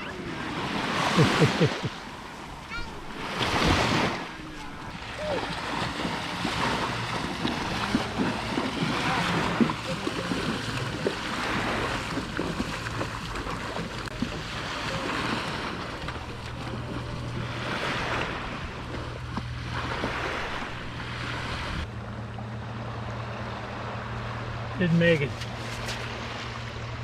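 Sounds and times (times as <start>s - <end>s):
ocean surf breaking: 0.0s - 21.8s.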